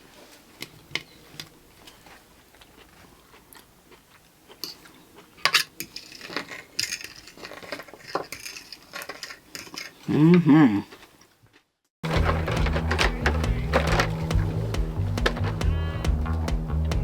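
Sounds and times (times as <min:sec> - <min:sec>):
cutlery clinking on dishes: 0:04.6 - 0:10.0.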